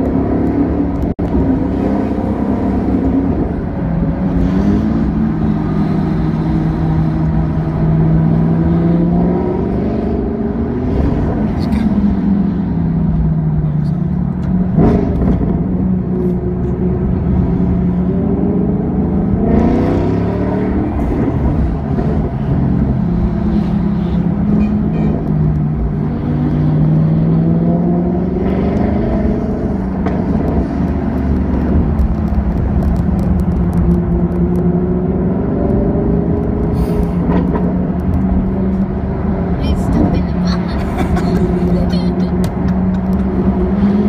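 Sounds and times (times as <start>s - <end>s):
sports car engine accelerating: 0.0s - 44.0s.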